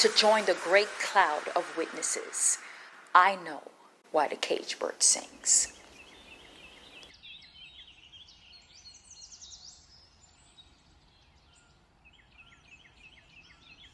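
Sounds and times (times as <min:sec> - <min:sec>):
small birds chirping: 0:04.5 - 0:10.6.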